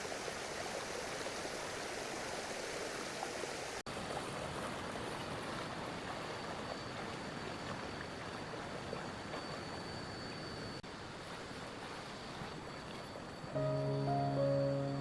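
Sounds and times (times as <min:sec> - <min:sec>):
faint high tone: 0:13.6 - 0:15.0.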